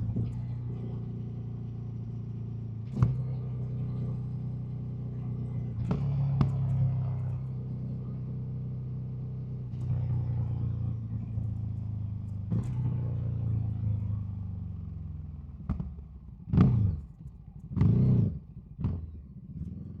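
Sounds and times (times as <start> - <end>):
motorcycle engine: 0.0 - 20.0.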